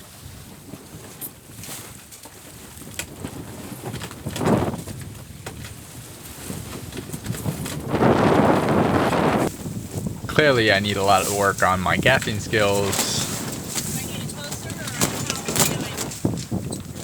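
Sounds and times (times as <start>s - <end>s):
wind: 0.0s - 17.0s
water rushing past sailboat: 6.0s - 17.0s.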